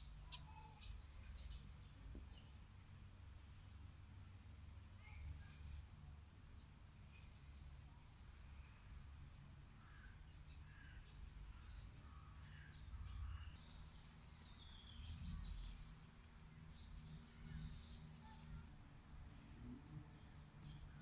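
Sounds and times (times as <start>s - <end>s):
small birds chirping: 0.0s - 2.8s, 6.5s - 19.5s, 20.1s - 21.0s.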